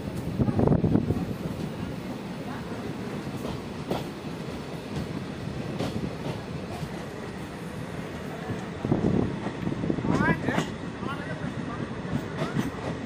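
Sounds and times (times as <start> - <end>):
train wheels rumbling on rails: 0.0 - 13.0
wheels clacking over rail joints: 3.1 - 7.4, 8.4 - 13.0.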